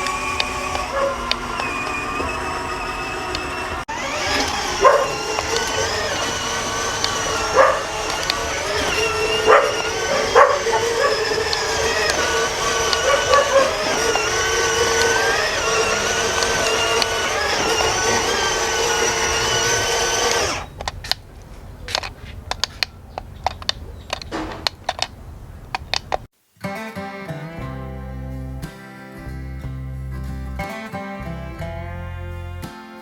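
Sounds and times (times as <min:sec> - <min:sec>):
small motor whirring: 0:00.0 - 0:25.1
sharp clicks and taps: 0:03.2 - 0:26.3.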